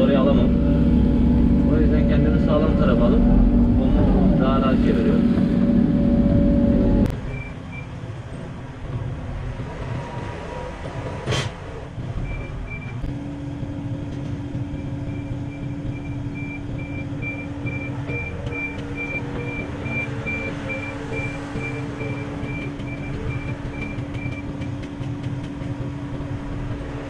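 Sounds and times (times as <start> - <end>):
steady hum: 0.0 - 7.5
tracked excavator running: 0.0 - 27.0.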